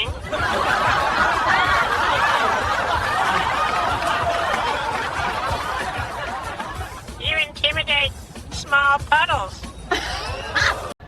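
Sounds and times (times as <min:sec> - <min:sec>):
people laughing: 0:00.0 - 0:07.2, 0:09.9 - 0:11.0.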